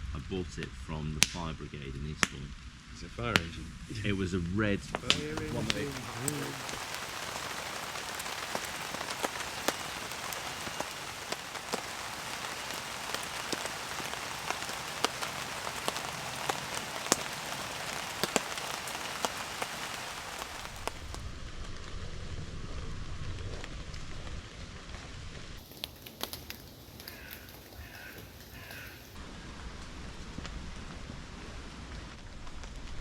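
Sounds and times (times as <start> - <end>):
steady rain hiss: 0.0 - 33.0
sharp raindrop hits: 4.9 - 22.0, 25.5 - 30.9.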